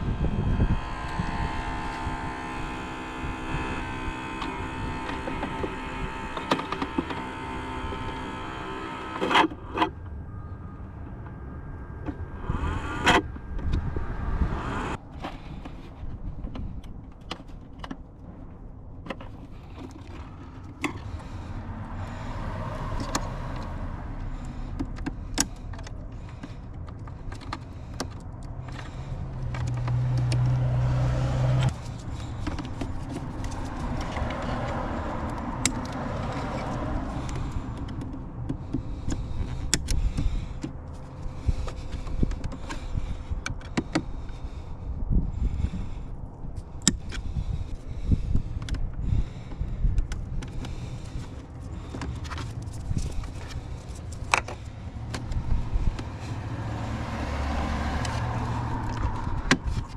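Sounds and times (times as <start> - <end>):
small electric motor humming: 0.0 - 10.0, 12.1 - 15.0, 20.2 - 25.6, 28.6 - 40.6.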